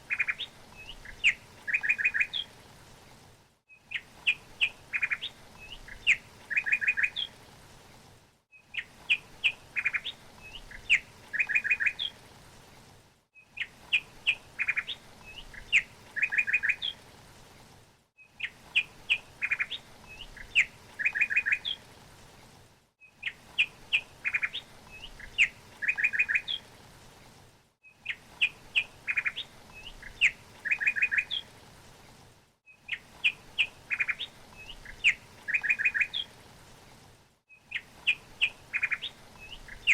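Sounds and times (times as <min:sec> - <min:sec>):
bird chirping: 0:00.1 - 0:02.5, 0:03.8 - 0:07.3, 0:18.4 - 0:21.8, 0:23.2 - 0:26.6, 0:28.0 - 0:31.4, 0:32.9 - 0:36.3, 0:37.5 - 0:39.9.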